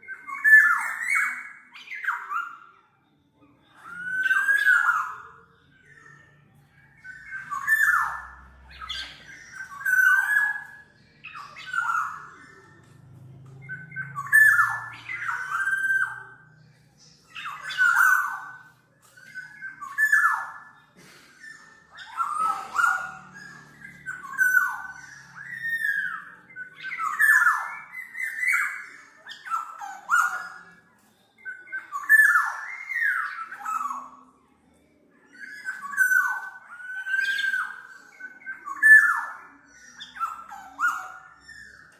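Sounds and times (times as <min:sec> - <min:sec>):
oriole calling: 0:07.0 - 0:30.9.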